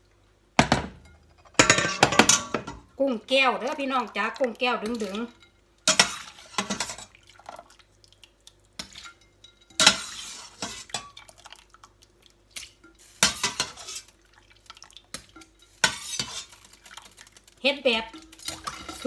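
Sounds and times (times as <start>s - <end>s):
metal utensil clattering on pot: 0.6s - 2.9s, 4.8s - 7.1s, 8.8s - 11.2s, 12.8s - 14.1s, 15.2s - 17.2s, 17.9s - 19.0s.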